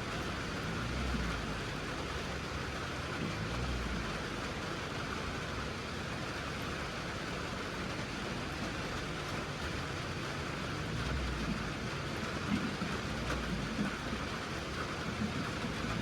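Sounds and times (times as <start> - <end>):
farm vehicle engine rumble: 0.0 - 16.0
rain hissing: 7.5 - 16.0.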